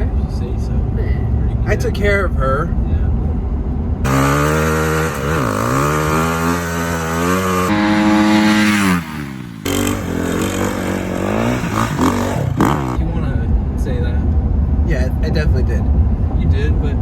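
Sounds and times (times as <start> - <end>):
dirt bike engine revving: 4.1 - 13.0.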